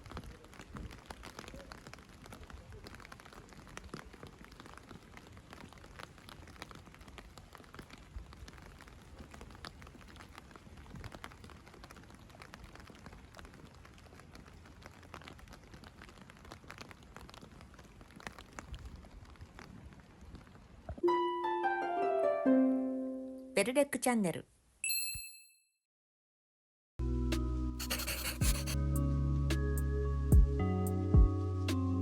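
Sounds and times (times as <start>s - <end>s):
light rain: 0.0s - 21.0s.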